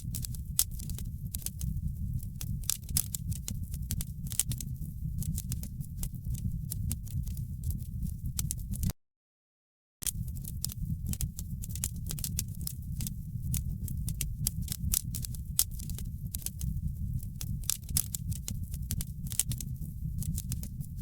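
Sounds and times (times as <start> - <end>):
wood fire crackling: 0.0 - 8.9, 10.0 - 21.0.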